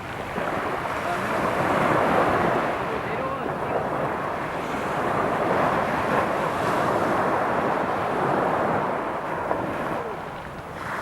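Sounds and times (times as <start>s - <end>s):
sea surf washing on shore: 0.0s - 11.0s
wind buffeting microphone: 0.0s - 11.0s.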